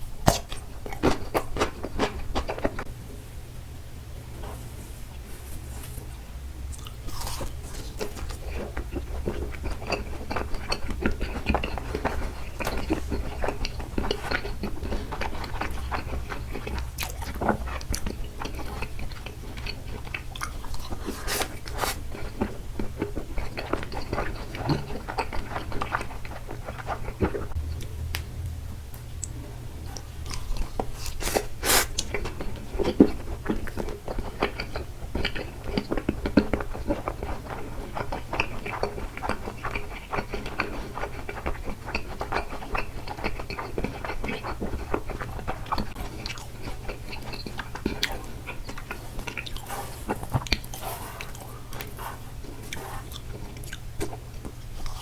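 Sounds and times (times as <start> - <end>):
steady low hum: 0.0 - 55.0
small mouth clicks: 0.2 - 1.1
chewing with wet mouth smacks: 0.2 - 2.9, 6.7 - 28.0, 29.0 - 55.0.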